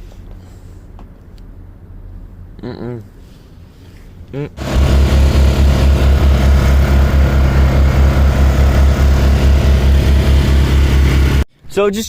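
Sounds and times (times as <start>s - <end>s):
boat engine throbbing: 4.4s - 11.5s.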